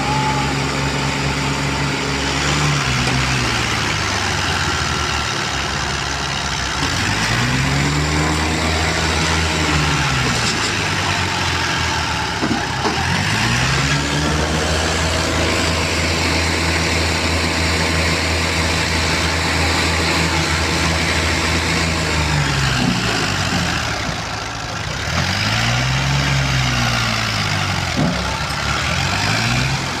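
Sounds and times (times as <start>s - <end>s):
tractor engine revving: 0.0s - 30.0s.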